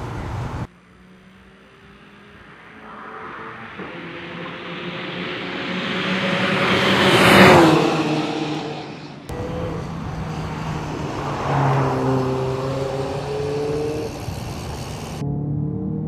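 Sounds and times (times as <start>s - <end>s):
car engine accelerating hard: 0.0s - 16.0s
car passing by: 0.0s - 16.0s.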